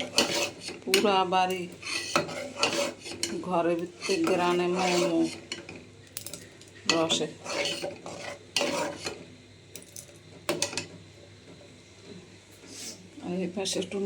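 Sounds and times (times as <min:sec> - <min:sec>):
spoon stirring in pot: 0:00.0 - 0:09.3.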